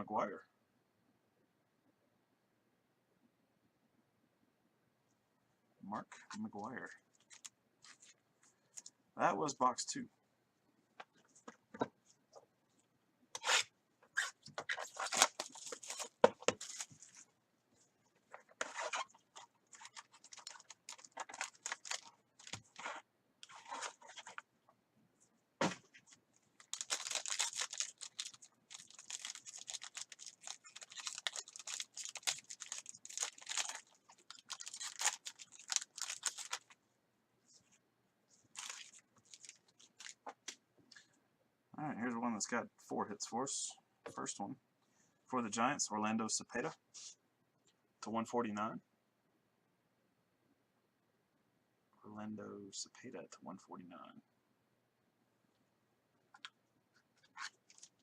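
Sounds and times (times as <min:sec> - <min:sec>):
plastic wrapping tearing and crinkling: 0:07.2 - 0:08.2, 0:14.2 - 0:17.2, 0:18.4 - 0:24.4, 0:26.6 - 0:36.8, 0:38.5 - 0:40.2, 0:57.2 - 0:58.0.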